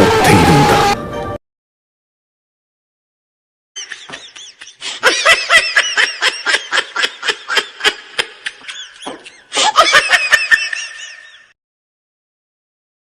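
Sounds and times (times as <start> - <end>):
man laughing hard: 3.8 - 11.6.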